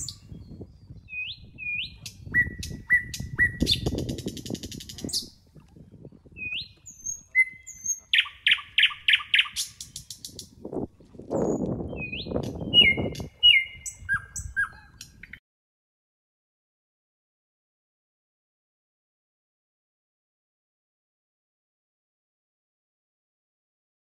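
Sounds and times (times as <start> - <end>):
birds chirping and whistling: 0.0 - 5.4, 6.3 - 10.6, 11.3 - 15.4.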